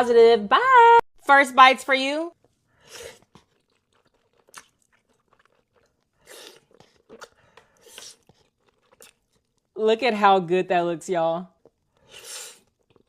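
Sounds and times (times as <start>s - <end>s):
chewing and biting: 3.1s - 9.7s, 11.6s - 13.0s.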